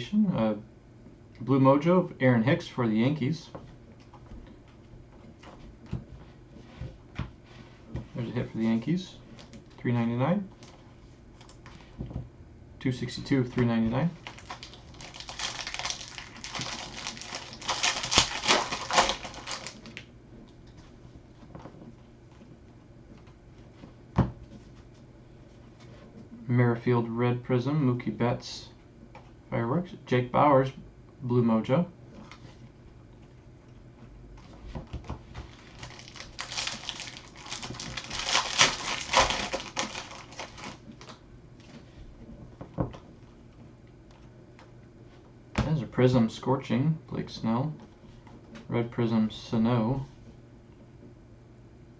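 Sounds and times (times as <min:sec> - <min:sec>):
foil wrapper crinkling: 0:14.2 - 0:20.0, 0:35.4 - 0:41.2.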